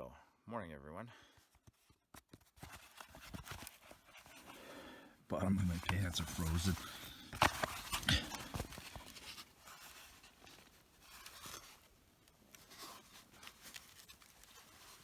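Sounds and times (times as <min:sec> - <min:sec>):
clothing and gear rustling: 0:01.4 - 0:15.0.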